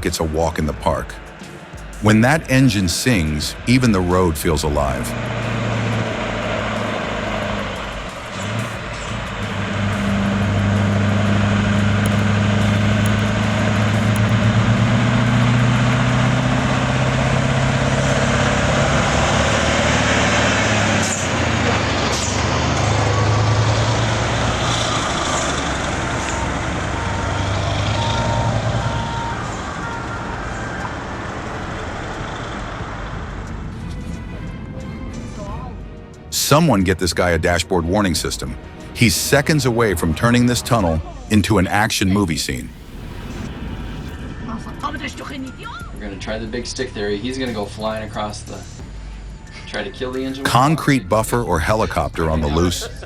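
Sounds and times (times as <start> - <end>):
diesel truck engine under load: 0.0 - 45.0, 50.4 - 53.0.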